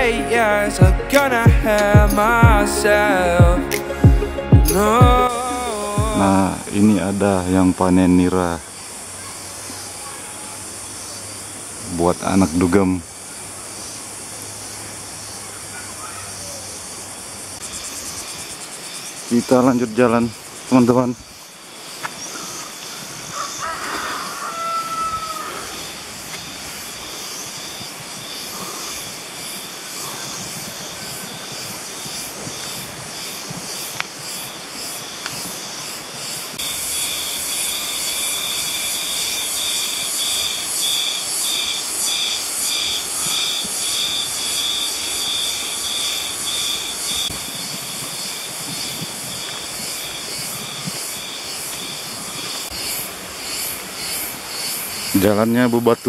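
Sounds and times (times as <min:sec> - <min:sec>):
insects buzzing: 0:04.8 - 0:56.0
steady hiss: 0:25.4 - 0:56.0.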